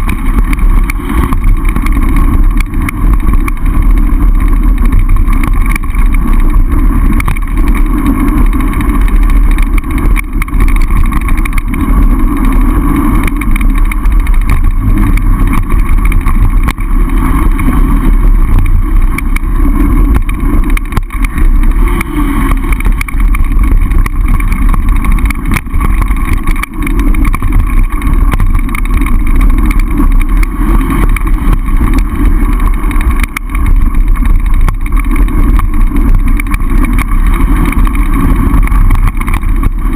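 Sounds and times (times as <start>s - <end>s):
low rumble: 0.0s - 39.9s
wind buffeting microphone: 0.0s - 39.9s.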